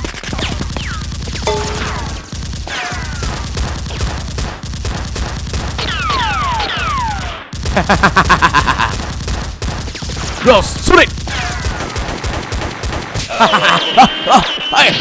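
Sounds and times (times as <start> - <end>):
rapid gunfire: 0.0 - 13.3
falling whistles: 13.4 - 15.0.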